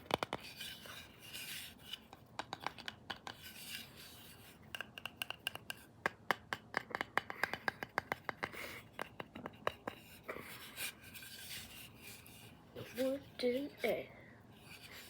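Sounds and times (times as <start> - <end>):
tapping and scratching on wood: 0.0 - 0.8, 1.9 - 3.5, 4.7 - 10.0.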